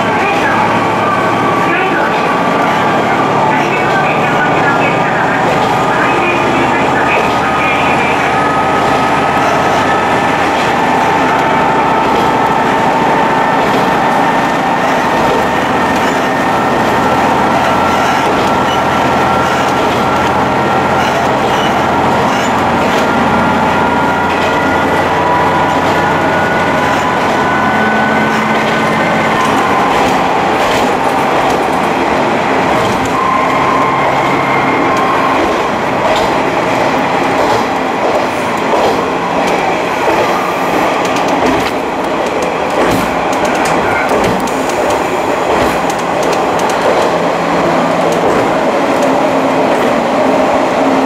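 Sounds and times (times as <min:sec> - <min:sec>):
diesel railcar running noise: 0:00.0 - 0:51.0
wheels clicking over rail joints: 0:35.0 - 0:47.3.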